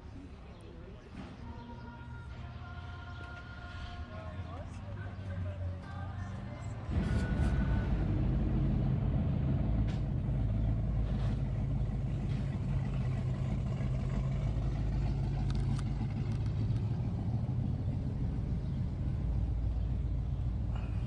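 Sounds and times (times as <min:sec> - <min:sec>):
car engine running: 0:04.6 - 0:21.0.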